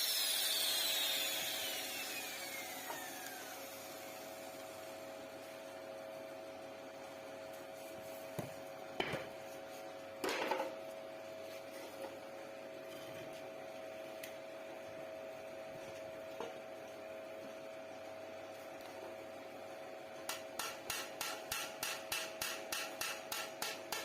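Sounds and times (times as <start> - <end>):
machine hum: 0.0 - 9.2.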